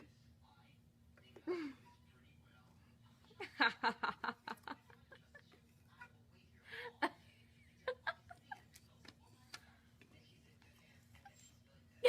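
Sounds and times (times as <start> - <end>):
people laughing and giggling: 3.4 - 8.9.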